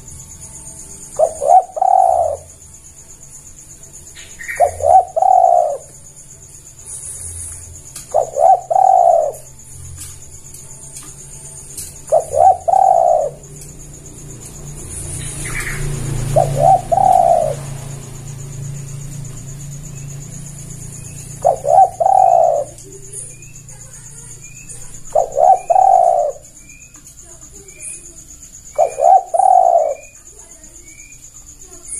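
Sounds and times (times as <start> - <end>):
bird chirps: 0.0 - 31.9
dove cooing: 0.9 - 2.7, 3.6 - 10.3, 10.9 - 31.9.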